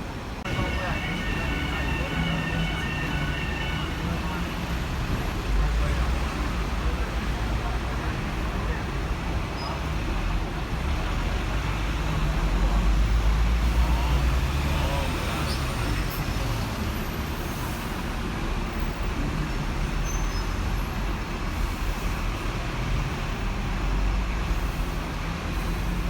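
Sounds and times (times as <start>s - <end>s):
road traffic: 0.0s - 26.0s
tram rumbling: 0.0s - 26.0s
faint voices: 0.4s - 16.8s.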